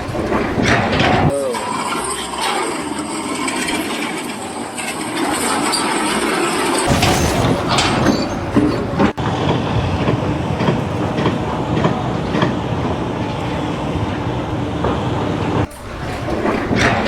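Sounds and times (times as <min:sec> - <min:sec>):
heavy vehicle rumbling: 0:00.0 - 0:17.0.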